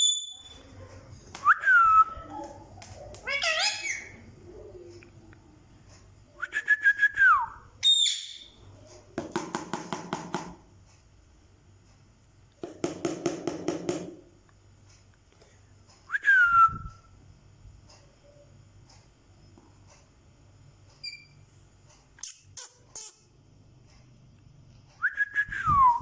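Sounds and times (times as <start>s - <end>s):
parrot whistling: 0.0s - 0.6s, 6.6s - 8.6s
parrot chattering calls: 3.2s - 4.3s, 7.8s - 8.5s.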